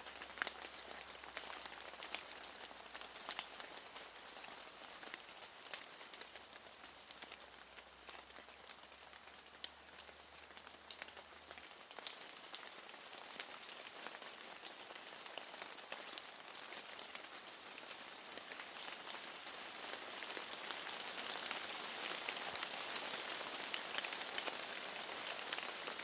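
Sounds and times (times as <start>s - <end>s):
rain with ticking raindrops: 0.0s - 26.0s.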